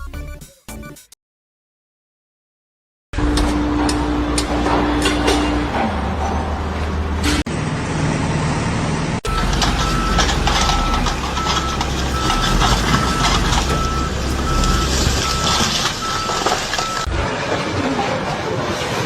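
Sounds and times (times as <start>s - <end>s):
construction site noise: 3.2s - 19.0s
heavy vehicle engine humming: 3.2s - 19.0s
reversing alarm beeping: 9.2s - 17.1s.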